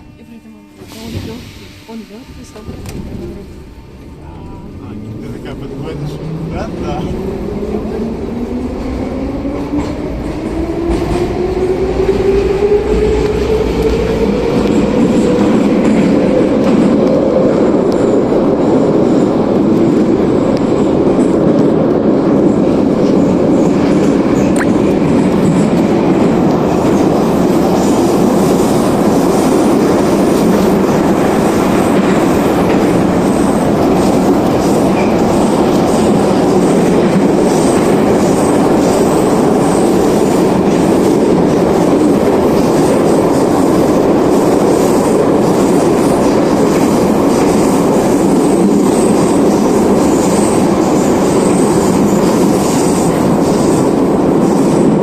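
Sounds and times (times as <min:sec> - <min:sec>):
metro train wheels rumbling on rails: 0:00.0 - 0:55.0.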